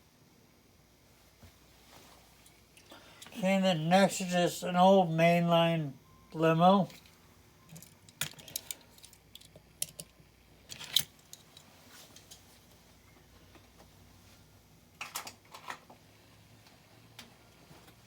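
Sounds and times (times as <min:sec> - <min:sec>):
toy cars clattering: 0:10.7 - 0:11.6.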